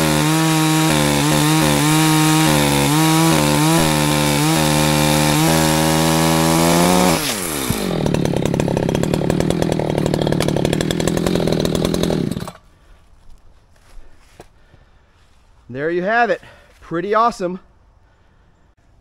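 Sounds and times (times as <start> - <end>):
chainsaw engine running: 0.0 - 13.3.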